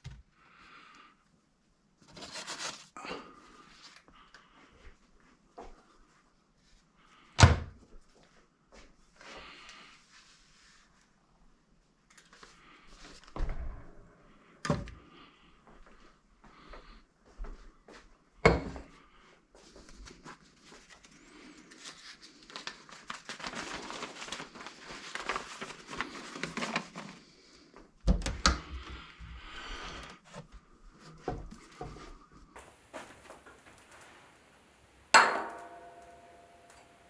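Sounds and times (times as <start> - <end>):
sharp knocks: 32.6 - 37.0.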